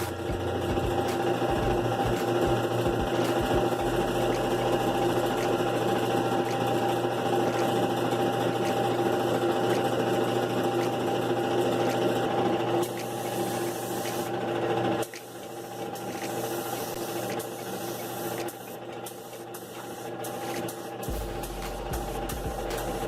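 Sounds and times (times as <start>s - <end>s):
small electric motor humming: 0.0s - 7.8s.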